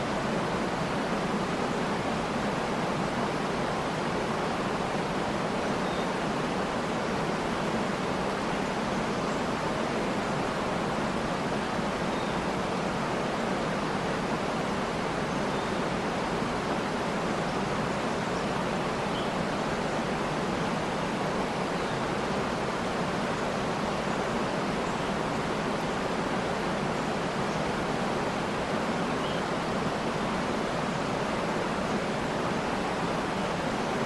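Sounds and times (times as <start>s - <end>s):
waterfall rushing: 0.0s - 34.0s
faint bird chirps: 5.7s - 6.2s, 12.1s - 12.5s, 15.3s - 15.9s, 18.0s - 19.4s, 29.1s - 29.7s.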